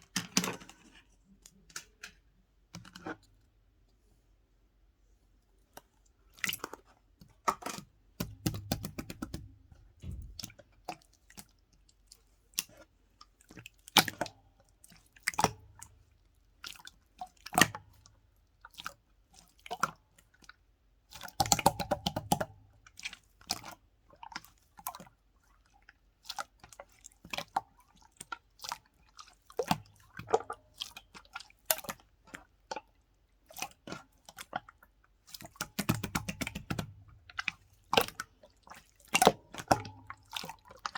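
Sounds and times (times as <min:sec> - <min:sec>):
slime squelching: 0:05.8 - 0:19.6, 0:26.3 - 0:40.9
slime clicking and popping: 0:08.2 - 0:10.4.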